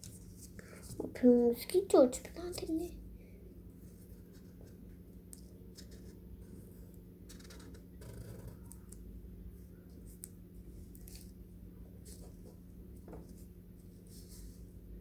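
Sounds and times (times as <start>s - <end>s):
faint low hum: 0.0s - 15.0s
marker pen scratching on paper: 5.7s - 8.7s.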